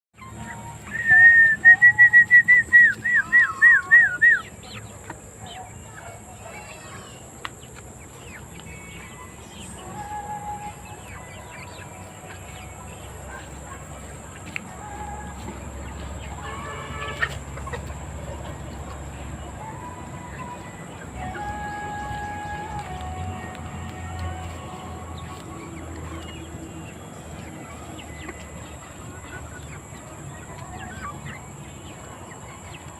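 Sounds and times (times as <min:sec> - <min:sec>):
loud whistled bird call: 0:00.5 - 0:04.6.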